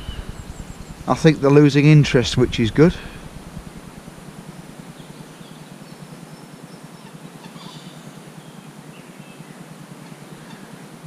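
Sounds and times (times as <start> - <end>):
low background rumble: 0.0 - 5.4
faint bird calls: 0.0 - 11.0.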